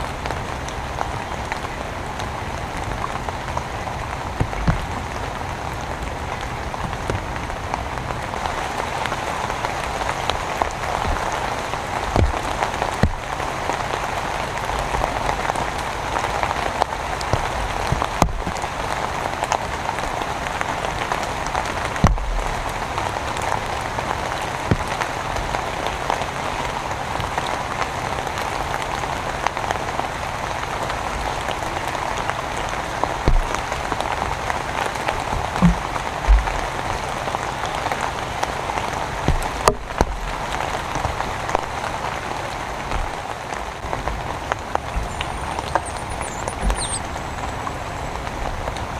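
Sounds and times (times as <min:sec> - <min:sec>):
steady downpour of rain: 0:00.0 - 0:48.9.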